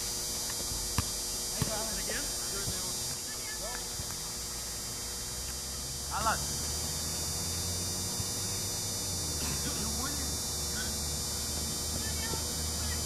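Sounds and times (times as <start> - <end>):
low hum and hiss: 0.0 - 13.0
distant high-pitched shout: 12.0 - 13.0.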